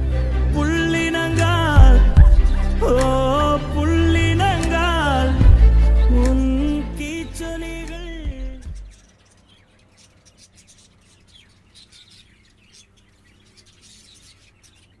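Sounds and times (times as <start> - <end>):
small birds chirping: 0.9 - 15.0.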